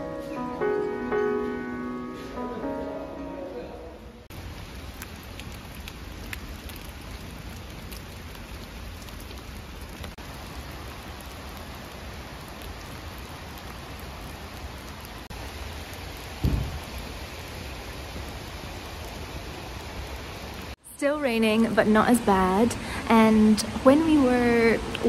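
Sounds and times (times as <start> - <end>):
steady rain falling: 4.2 - 25.0
low thump: 16.4 - 16.9.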